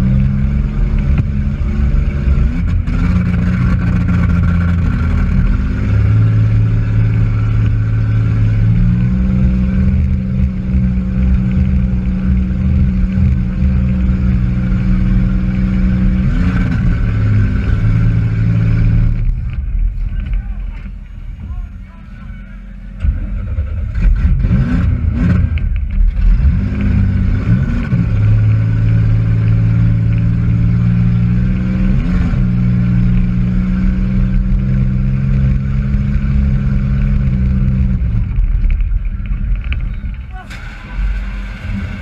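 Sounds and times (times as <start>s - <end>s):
car engine revving: 0.0s - 42.0s.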